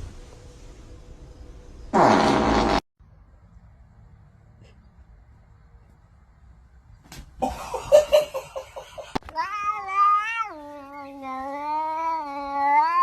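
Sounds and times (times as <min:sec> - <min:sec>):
cat yowling: 0:09.4 - 0:13.0.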